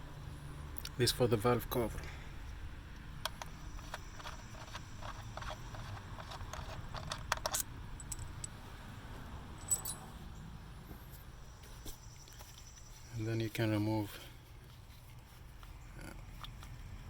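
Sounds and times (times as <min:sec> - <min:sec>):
socket wrench and bolts clinking: 0:03.2 - 0:08.6, 0:09.6 - 0:10.1.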